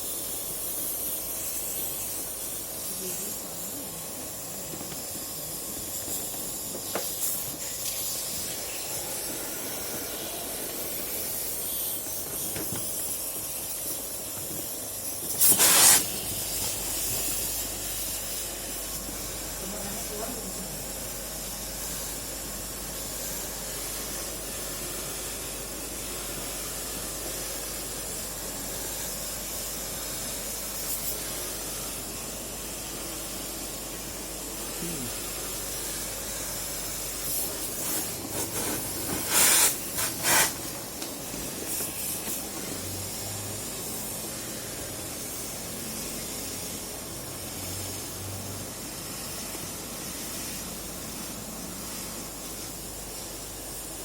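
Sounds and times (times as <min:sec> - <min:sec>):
steady hissing spray: 0:00.0 - 0:54.0
loud spray bursts: 0:06.1 - 0:19.0, 0:34.6 - 0:41.0.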